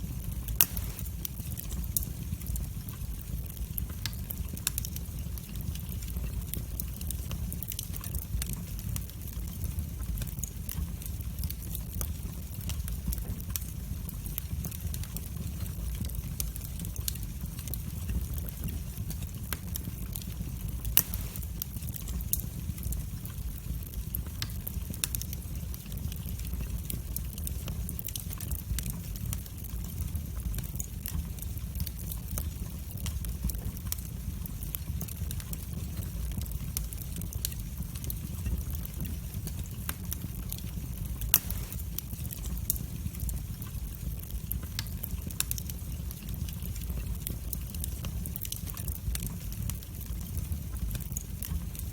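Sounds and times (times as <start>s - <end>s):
wood fire crackling: 0.0s - 51.9s
loud pop from fire: 0.5s - 2.1s, 20.9s - 22.5s, 41.3s - 42.8s.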